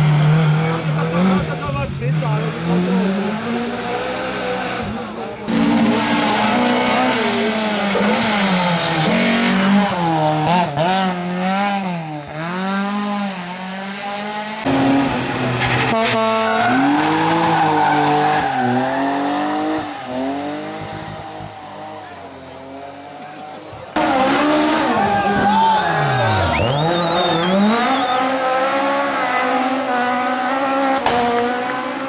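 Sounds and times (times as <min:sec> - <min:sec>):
rally car engine revving: 0:00.0 - 0:32.0
tyre squeal: 0:25.0 - 0:28.5.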